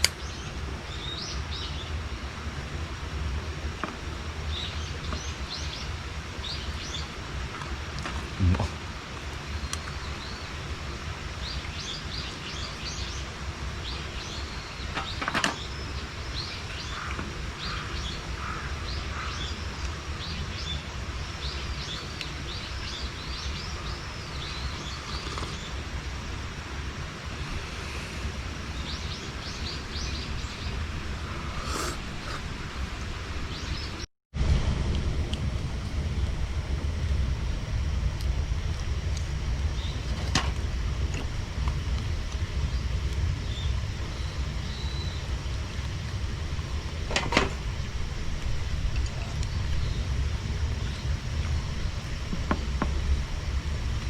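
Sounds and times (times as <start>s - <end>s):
small birds chirping: 0.0s - 2.3s, 3.7s - 26.1s, 27.2s - 32.6s, 39.6s - 40.4s, 41.3s - 53.2s
steady low rumble: 0.0s - 54.0s.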